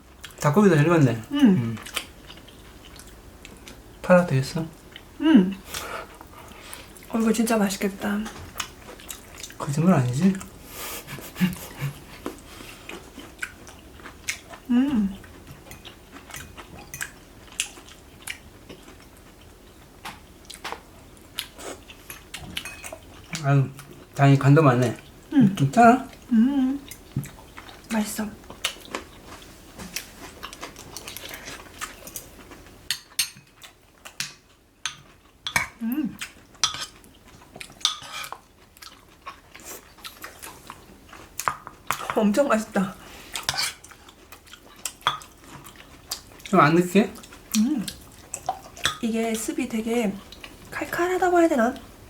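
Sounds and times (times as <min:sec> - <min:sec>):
chewing and mouth sounds: 0:01.2 - 0:04.0, 0:08.2 - 0:24.2, 0:25.0 - 0:42.2, 0:43.1 - 0:49.0
spoons clinking against bowls: 0:22.6 - 0:23.0, 0:32.9 - 0:33.5, 0:34.8 - 0:35.7, 0:36.6 - 0:37.0, 0:37.8 - 0:38.3.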